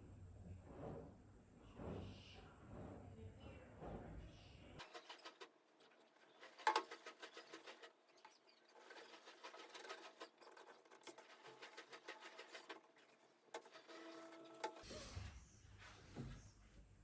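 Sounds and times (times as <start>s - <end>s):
hand tool scratching thin wood: 4.8s - 14.8s.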